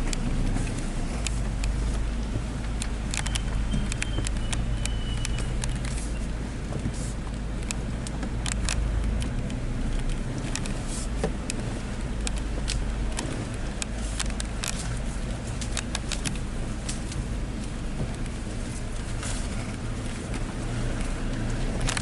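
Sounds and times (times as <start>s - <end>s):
sharp clicks and rattles: 0.0s - 22.0s
vehicle engine humming: 0.0s - 22.0s.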